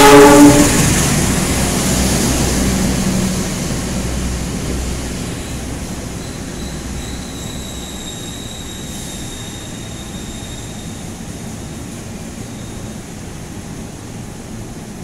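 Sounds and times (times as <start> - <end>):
train wheels rumbling on rails: 0.0 - 15.0
high-pitched wheel squeal: 5.4 - 11.2.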